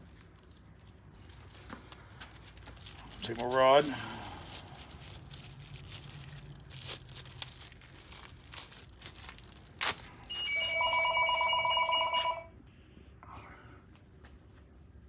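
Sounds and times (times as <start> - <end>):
telephone ringing: 10.3 - 12.6.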